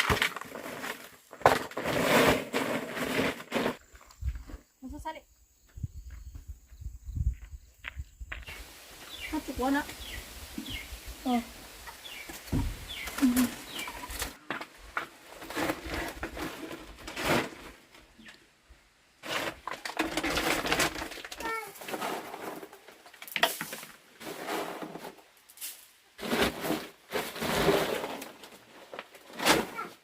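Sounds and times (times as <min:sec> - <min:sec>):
rustling and knocking: 0:11.8 - 0:17.8.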